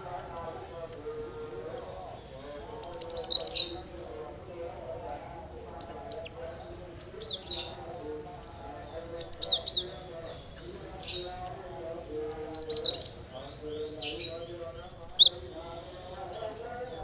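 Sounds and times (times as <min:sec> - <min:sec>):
bird high chirps: 0:02.8 - 0:03.8, 0:05.8 - 0:06.4, 0:07.0 - 0:07.8, 0:09.2 - 0:11.3, 0:12.6 - 0:15.6.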